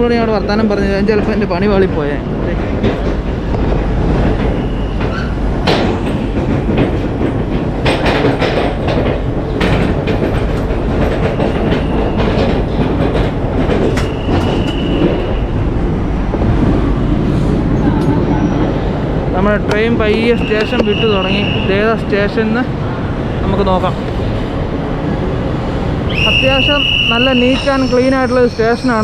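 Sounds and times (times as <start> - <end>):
train coaches rumbling: 0.0 - 29.0
wheels clicking over rail joints: 2.6 - 15.4
high squeal: 4.5 - 5.4, 14.0 - 15.6, 26.1 - 29.0.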